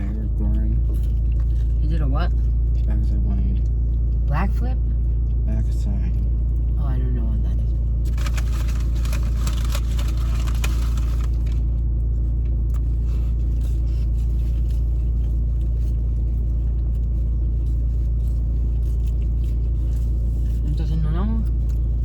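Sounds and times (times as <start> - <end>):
steady low rumble: 0.0 - 22.0
crackling and rustling: 8.0 - 20.7.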